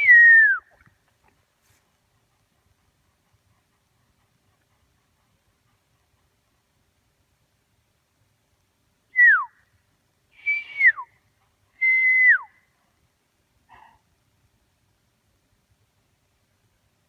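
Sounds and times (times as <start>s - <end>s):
person whistling calls: 0.0s - 0.8s, 10.4s - 11.0s.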